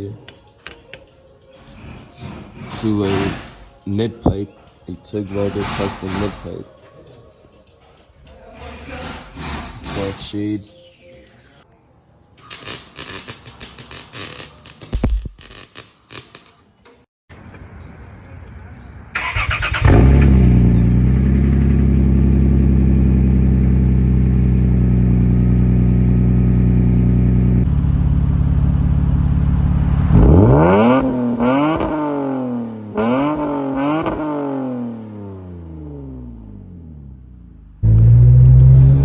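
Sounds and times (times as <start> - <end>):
car engine idling and revving: 19.8 - 39.0.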